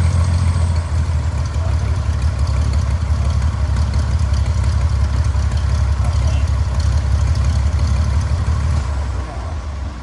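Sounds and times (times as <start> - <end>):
piston aircraft engine running: 0.0 - 9.2.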